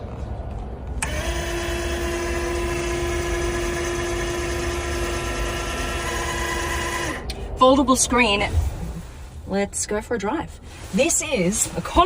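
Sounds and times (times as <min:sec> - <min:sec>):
small electric motor whine: 0:01.0 - 0:07.2.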